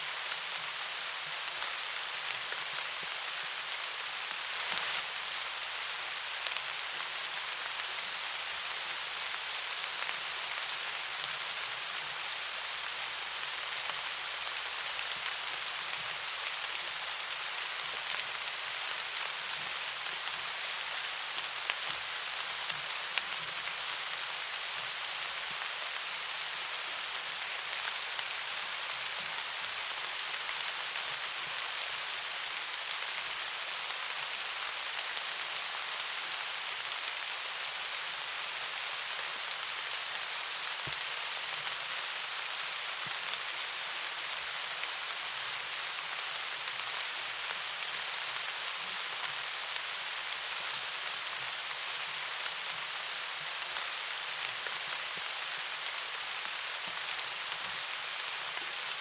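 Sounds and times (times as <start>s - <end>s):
rain hissing: 0.1s - 33.5s.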